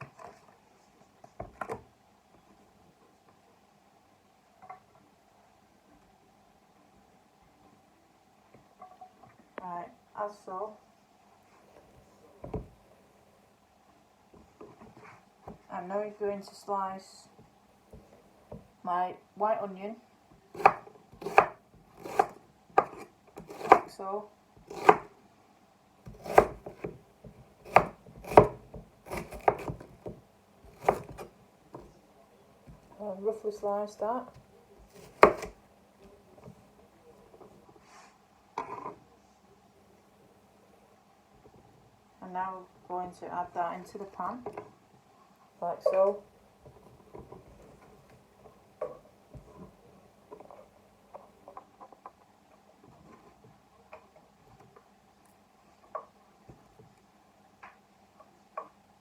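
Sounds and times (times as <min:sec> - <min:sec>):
knife striking chopping board: 0:27.6 - 0:29.8, 0:34.9 - 0:35.6.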